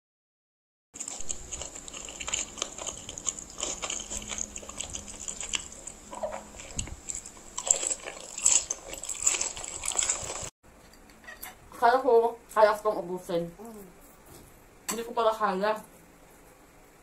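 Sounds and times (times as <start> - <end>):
noodles being chewed: 1.0 - 10.5.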